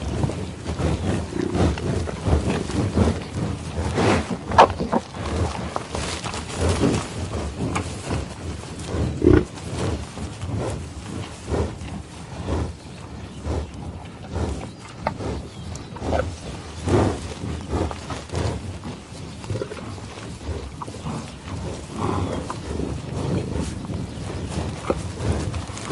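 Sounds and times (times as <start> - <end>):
large animal calling: 9.2 - 9.5.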